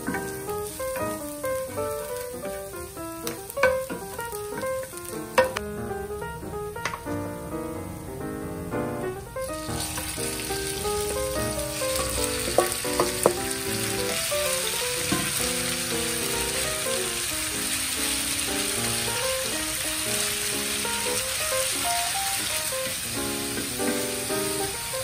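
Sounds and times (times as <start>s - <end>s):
spoon tapping pan: 0.0s - 1.2s, 3.3s - 5.7s, 12.0s - 13.5s, 15.1s - 15.4s
meat sizzling in hot oil: 0.0s - 7.2s, 9.3s - 25.0s.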